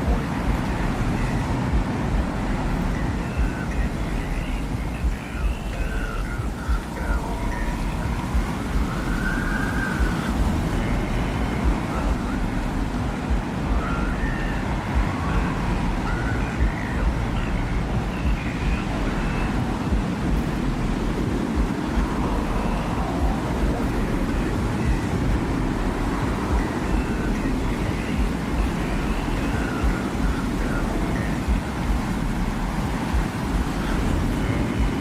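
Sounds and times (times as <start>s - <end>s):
faint wavering gliding tones: 0.0s - 35.0s
low rushing wind: 0.0s - 35.0s.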